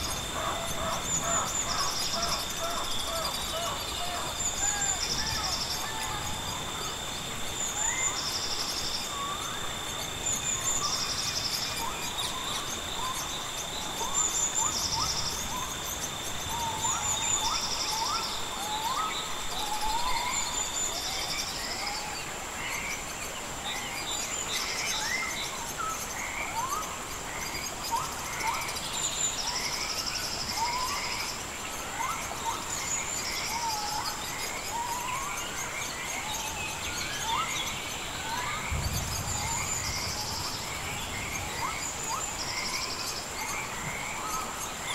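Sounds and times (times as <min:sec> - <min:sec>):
birds chirping: 0:00.0 - 0:18.2, 0:32.7 - 0:44.9
buzzy insect trill: 0:00.0 - 0:22.0
high-pitched insect drone: 0:00.0 - 0:44.9
lower insect tone: 0:00.0 - 0:44.9.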